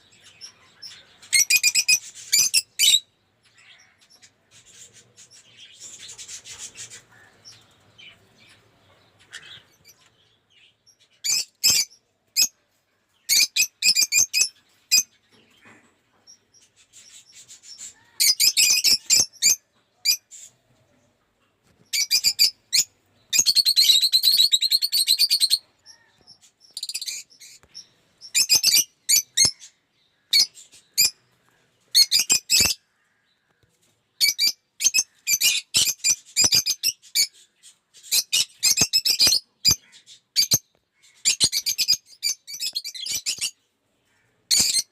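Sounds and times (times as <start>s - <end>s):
lovebirds chattering and screeching: 0.0s - 44.9s.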